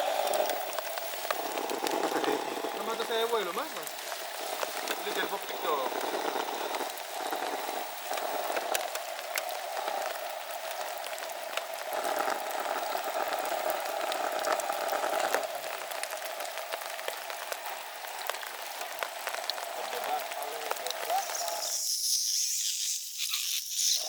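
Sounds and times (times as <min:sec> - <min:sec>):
mid-pitched drone: 0:00.0 - 0:13.4
steady rain falling: 0:00.0 - 0:22.5.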